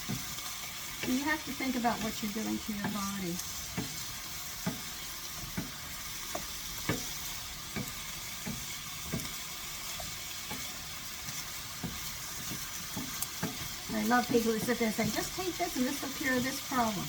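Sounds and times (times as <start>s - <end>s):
vegetables sizzling in a pan: 0.0s - 17.0s
utensil knocking against pan: 5.5s - 9.4s, 10.0s - 16.2s.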